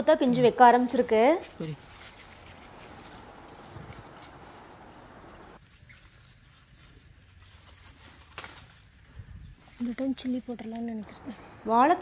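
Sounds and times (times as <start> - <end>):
soft rustle: 0.7 - 11.5
small bird chirping: 1.5 - 8.4, 9.2 - 11.7.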